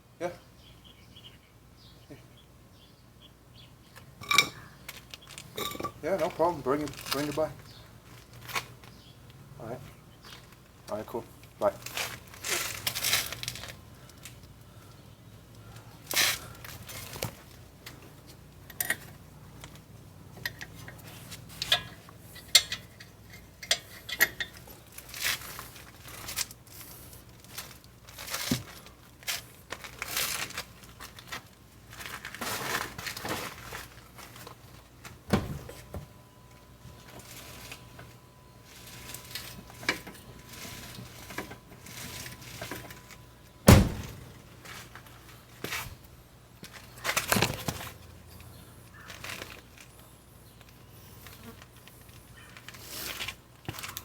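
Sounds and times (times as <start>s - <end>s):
metal tools clinking: 4.2s - 4.6s, 5.4s - 7.5s, 18.6s - 19.2s, 20.4s - 25.2s
handling rustle: 4.2s - 9.1s, 10.2s - 14.5s, 16.1s - 54.0s.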